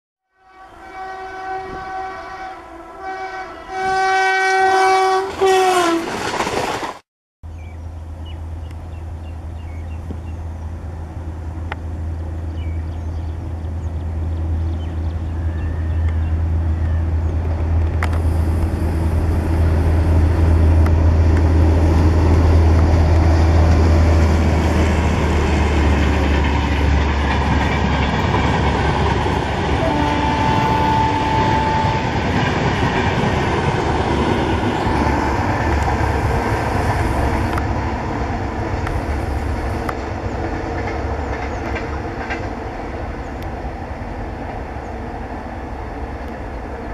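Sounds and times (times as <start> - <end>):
train horn: 0.3 - 6.2, 29.6 - 32.6, 34.6 - 37.6
train rumbling over track: 0.6 - 46.9
low drone: 7.8 - 40.4.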